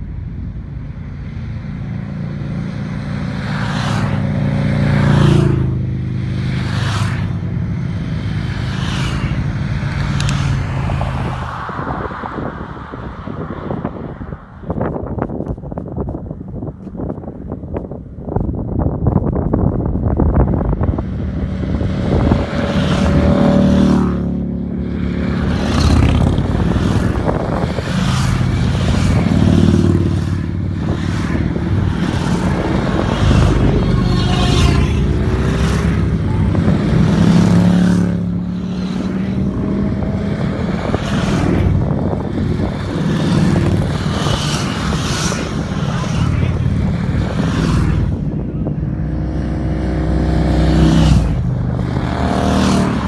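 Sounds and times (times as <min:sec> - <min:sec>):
motorcycle engine accelerating: 0:17.0 - 0:53.0.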